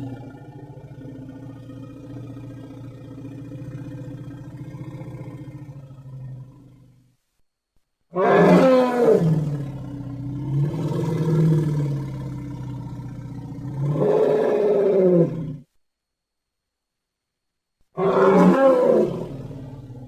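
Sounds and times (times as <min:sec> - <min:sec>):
cartoon creature roaring: 0:18.0 - 0:19.5.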